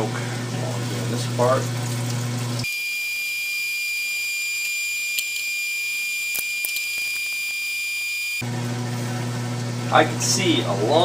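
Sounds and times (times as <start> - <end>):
high-pitched electronic tone: 2.6 - 8.4.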